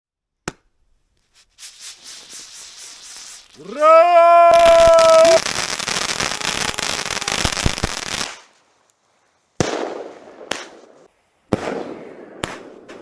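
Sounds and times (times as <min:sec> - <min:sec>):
fireworks crackling: 0:01.4 - 0:11.1
firework bangs: 0:02.1 - 0:08.5.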